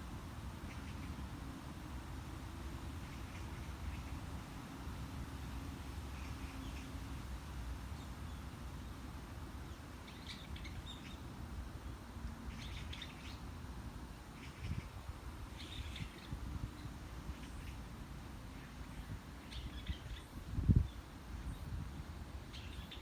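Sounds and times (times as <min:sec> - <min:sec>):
small birds chirping: 0:09.6 - 0:11.3, 0:12.4 - 0:13.6, 0:14.3 - 0:17.9, 0:18.5 - 0:21.8, 0:22.5 - 0:23.0
wind blowing: 0:13.4 - 0:23.0.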